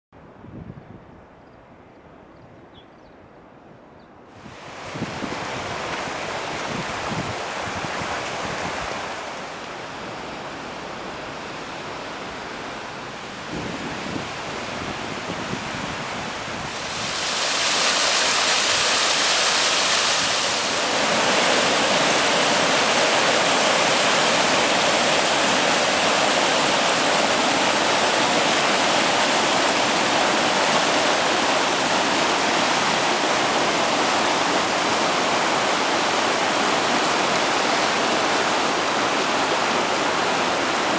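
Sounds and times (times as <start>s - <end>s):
stream water rushing: 4.3s - 40.9s.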